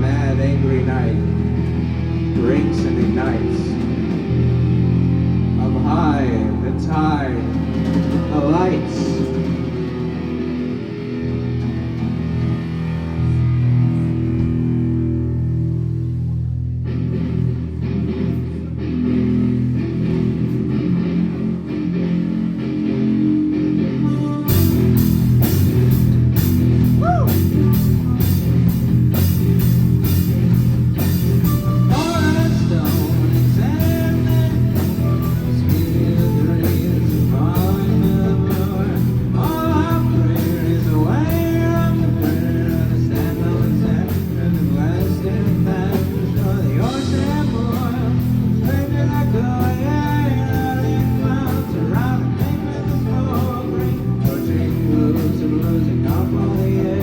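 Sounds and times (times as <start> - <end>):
person singing: 0.0 - 4.8, 5.4 - 12.8, 31.0 - 57.0
electric guitar: 0.0 - 57.0
drum kit: 0.9 - 15.1, 24.5 - 57.0.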